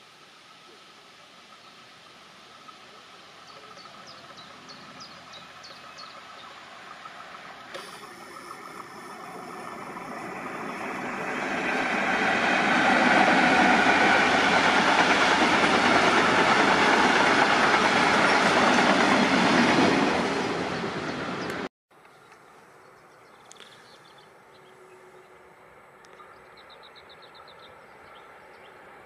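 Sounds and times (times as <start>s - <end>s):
train wheels rumbling on rail: 7.0s - 21.7s.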